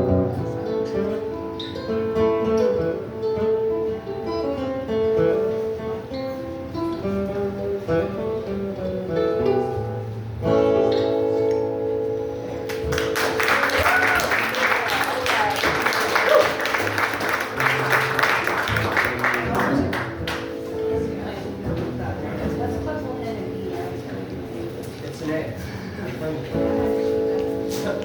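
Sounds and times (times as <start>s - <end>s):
picked acoustic guitar: 0.0s - 28.0s
audience applause: 12.7s - 20.5s
acoustic string band playing: 16.8s - 24.6s.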